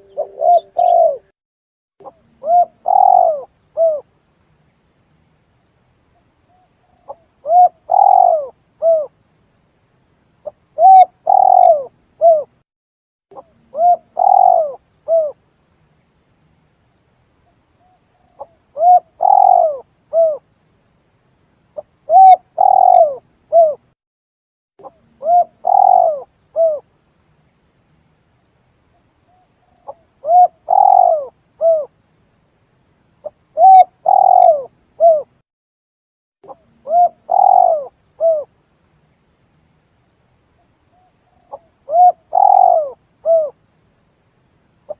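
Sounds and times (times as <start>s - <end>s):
dove cooing: 0.0s - 1.3s, 2.4s - 4.0s, 7.1s - 9.1s, 10.8s - 12.5s, 13.7s - 15.4s, 18.3s - 20.4s, 22.1s - 23.8s, 25.2s - 26.8s, 29.8s - 31.9s, 33.6s - 35.3s, 36.5s - 38.5s, 41.4s - 43.6s.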